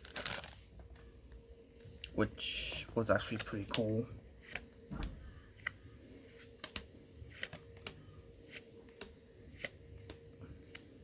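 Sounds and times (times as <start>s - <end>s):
faint steady hum: 0.0s - 11.0s
cards clicking as flipped: 6.4s - 10.9s.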